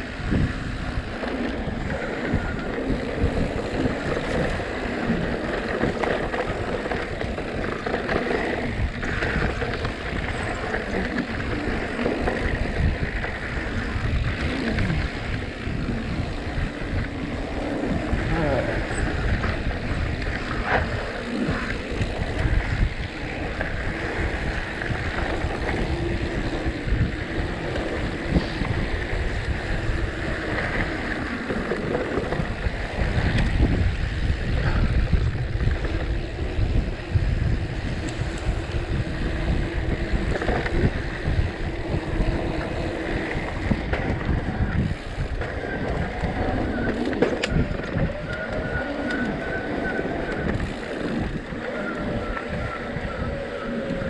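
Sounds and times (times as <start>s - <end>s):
mountain bike rumble and rattle: 0.0s - 54.0s
wind buffeting microphone: 0.0s - 54.0s.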